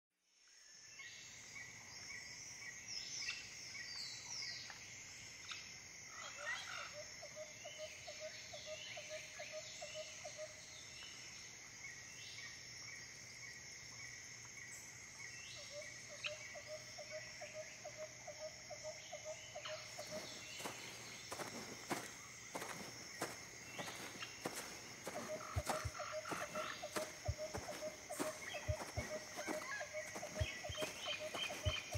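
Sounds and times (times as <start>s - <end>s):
insect chorus: 0.2s - 31.9s.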